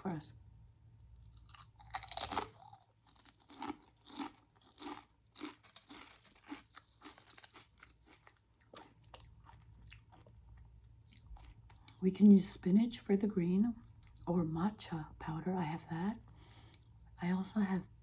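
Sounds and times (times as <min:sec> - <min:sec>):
crunchy chewing: 0:01.2 - 0:12.0
crunchy bite: 0:01.4 - 0:09.3.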